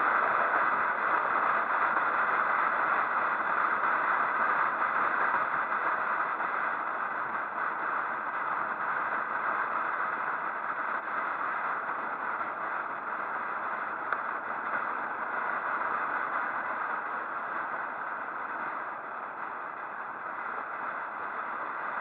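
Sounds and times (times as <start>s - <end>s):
rushing wind and road noise: 0.0s - 22.0s.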